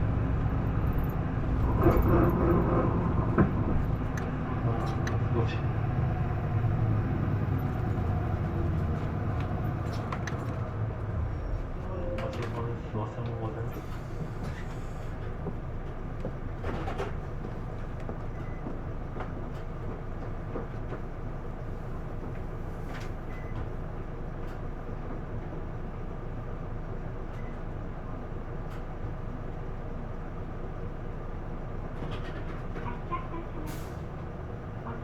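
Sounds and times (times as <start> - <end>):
road noise: 0.0 - 16.4
bus diesel engine: 0.0 - 35.0.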